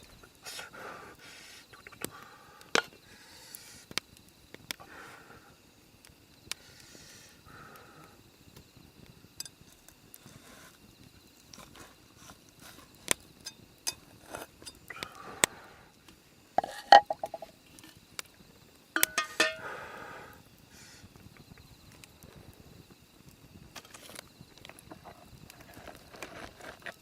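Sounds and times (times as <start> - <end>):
camp cookware clicking and knocking: 2.8 - 3.0, 13.4 - 14.9, 16.6 - 17.5, 19.0 - 19.7.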